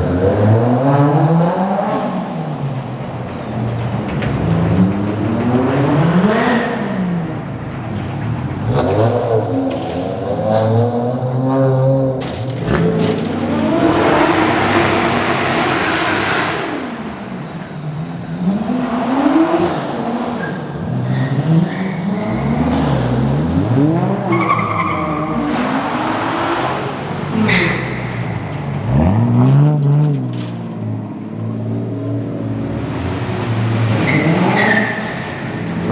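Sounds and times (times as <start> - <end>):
car passing with rasping exhaust: 0.0 - 35.9
cars accelerating and revving: 0.0 - 35.9.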